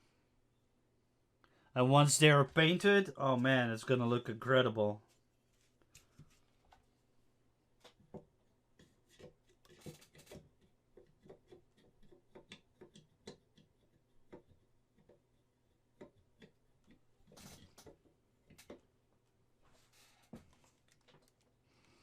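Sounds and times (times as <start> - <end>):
resin parts clicking and tapping: 7.8 - 19.0.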